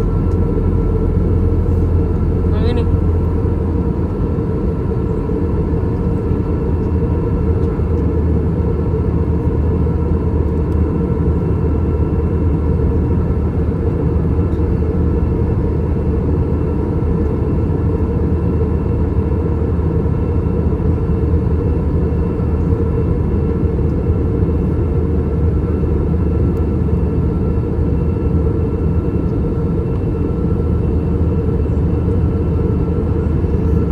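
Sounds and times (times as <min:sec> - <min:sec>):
airplane cabin drone: 0:00.0 - 0:33.9.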